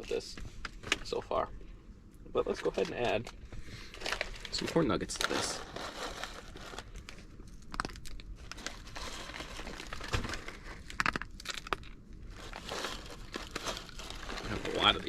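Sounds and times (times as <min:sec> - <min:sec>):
plastic pouch tearing and crinkling: 0:03.9 - 0:15.0.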